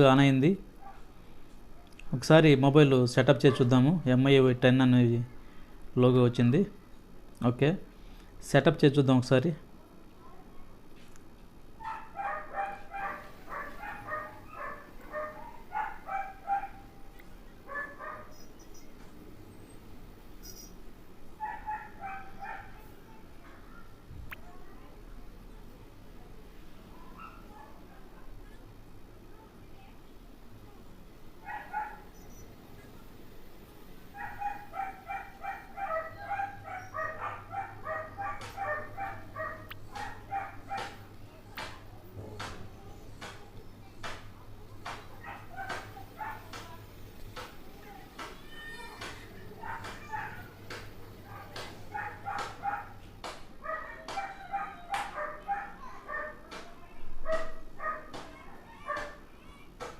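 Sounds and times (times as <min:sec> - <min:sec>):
dog barking rapidly: 0:11.8 - 0:17.0, 0:17.7 - 0:18.4, 0:21.4 - 0:22.8, 0:31.4 - 0:32.1, 0:34.2 - 0:41.1, 0:44.8 - 0:46.8, 0:49.0 - 0:53.0, 0:53.6 - 0:56.4, 0:57.3 - 0:58.2, 0:58.8 - 0:59.2.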